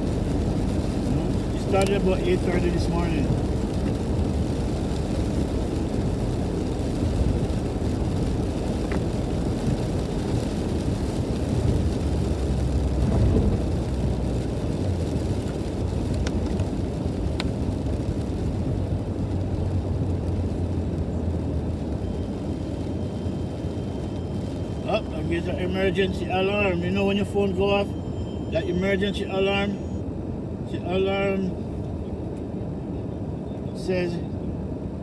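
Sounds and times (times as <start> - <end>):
car cabin road rumble: 0.0 - 35.0
faint ticks: 15.5 - 16.6.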